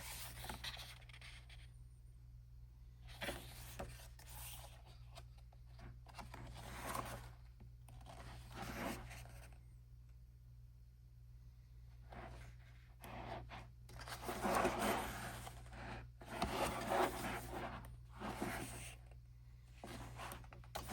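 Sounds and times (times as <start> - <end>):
paper pages rustling and turning: 0.0 - 1.7, 3.1 - 9.5, 12.1 - 19.0, 19.8 - 20.9.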